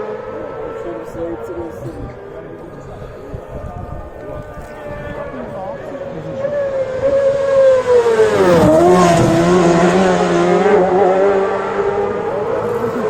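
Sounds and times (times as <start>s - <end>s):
racing engine passing at speed: 5.2s - 13.0s.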